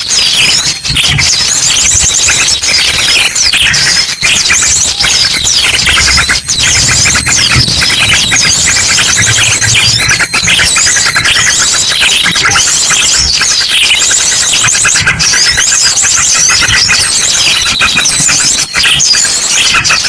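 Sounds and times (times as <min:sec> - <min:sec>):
small birds chirping and trilling: 0:00.0 - 0:20.0
drongo song bursts: 0:04.5 - 0:12.2.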